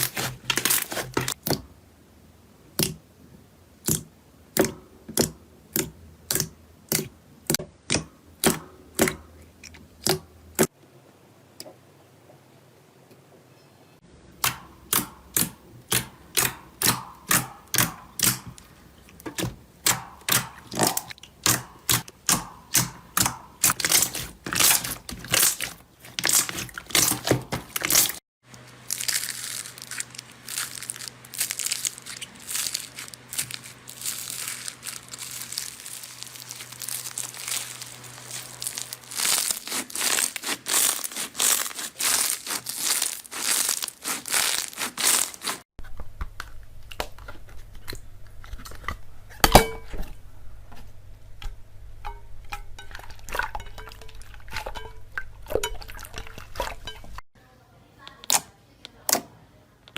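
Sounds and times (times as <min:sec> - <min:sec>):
slime crinkling: 0:00.0 - 0:01.5, 0:22.7 - 0:45.7
slime crackling pops: 0:28.9 - 0:45.6.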